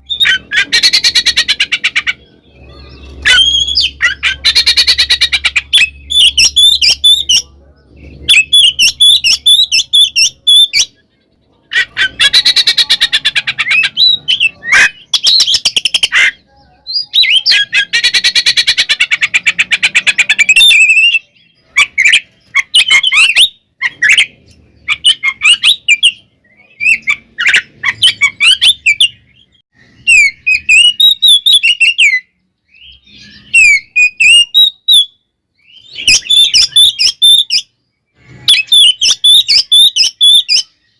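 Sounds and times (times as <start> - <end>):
rapid harsh bird notes: 0.0 - 40.9
bird singing whistled phrases: 2.6 - 7.5, 16.8 - 18.8, 20.0 - 37.7, 38.3 - 40.9.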